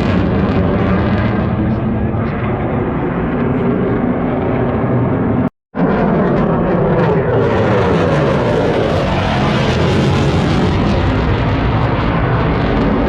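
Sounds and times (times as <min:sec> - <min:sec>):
aircraft engines droning: 0:00.0 - 0:13.0.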